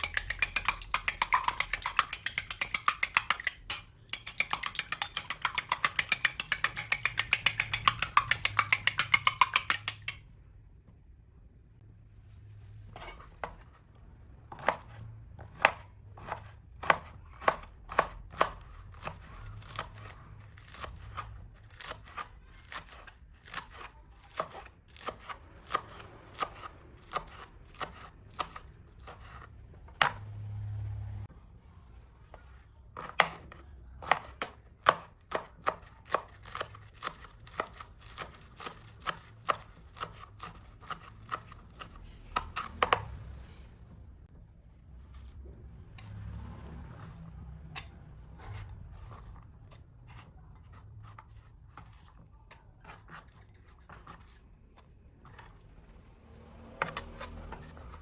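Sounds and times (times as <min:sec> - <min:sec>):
knife chopping on cutting board: 0:00.0 - 0:10.2, 0:14.5 - 0:30.2, 0:33.0 - 0:43.1.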